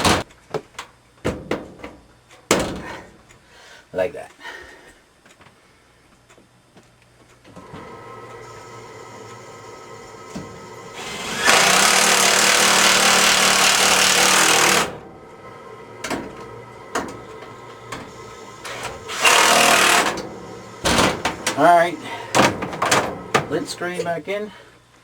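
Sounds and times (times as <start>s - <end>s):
power drill driving a screw: 7.6s - 15.1s, 16.0s - 22.0s.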